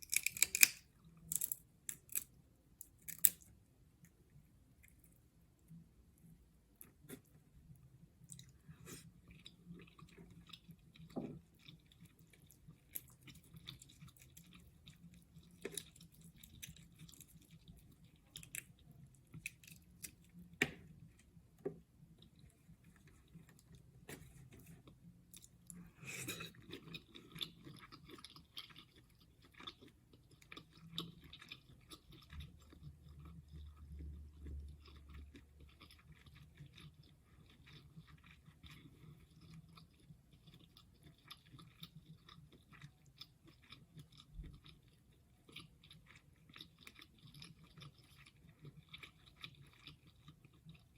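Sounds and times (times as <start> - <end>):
shell clicks and crackling: 0.0 - 2.2.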